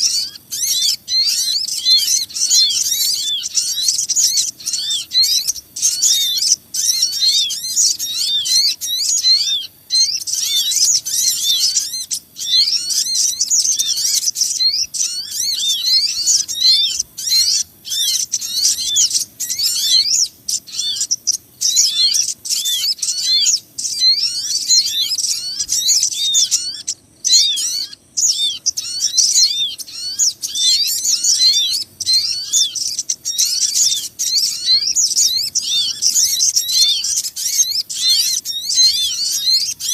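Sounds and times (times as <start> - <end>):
small birds chirping and twittering: 0.0 - 39.9.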